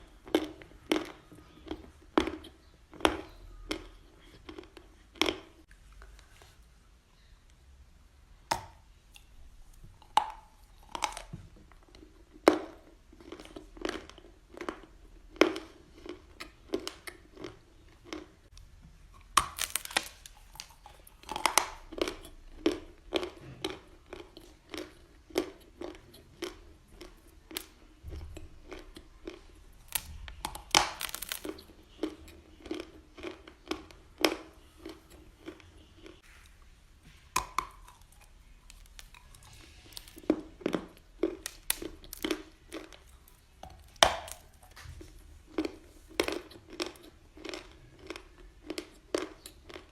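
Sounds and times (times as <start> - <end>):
crunchy bites: 19.2 - 36.2, 37.2 - 49.9
chewing close to microphone: 37.4 - 49.9.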